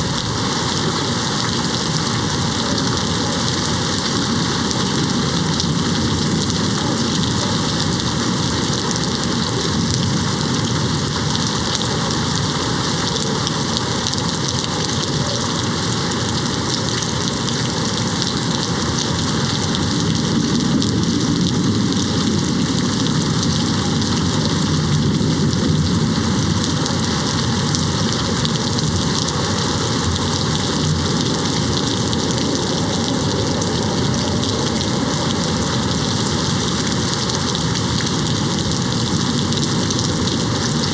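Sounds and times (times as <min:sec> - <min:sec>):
low rumble: 0:00.0 - 0:15.0
rain hitting a window: 0:00.0 - 0:40.9.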